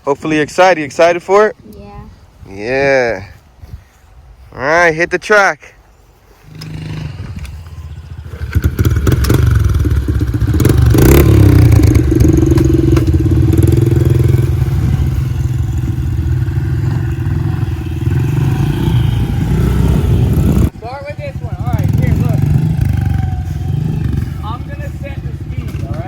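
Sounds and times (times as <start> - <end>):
dirt bike engine: 6.4 - 26.0.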